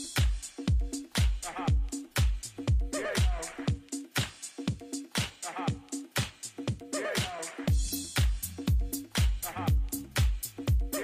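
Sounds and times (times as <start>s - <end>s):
deep house music: 0.0s - 11.0s.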